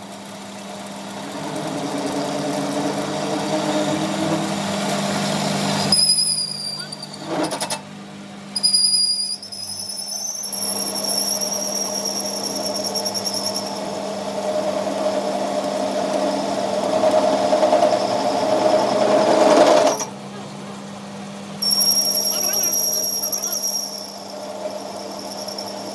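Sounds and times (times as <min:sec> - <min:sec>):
workshop machine running: 0:00.0 - 0:25.9
high fluttering whistle: 0:05.8 - 0:07.3, 0:08.6 - 0:14.2, 0:21.6 - 0:25.9
mid-pitched whine: 0:21.6 - 0:25.9.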